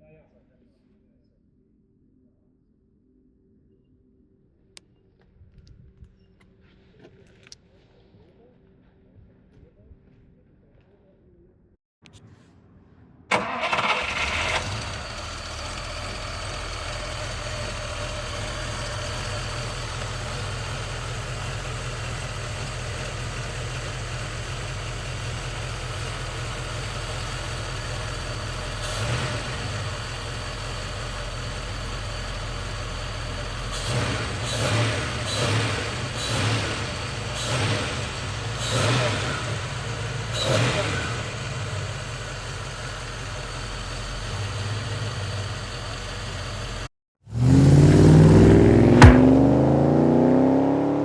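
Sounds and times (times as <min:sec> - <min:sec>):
car engine idling: 0:13.3 - 0:50.0
car engine cranking: 0:13.3 - 0:50.6
car engine revving: 0:13.3 - 0:51.0.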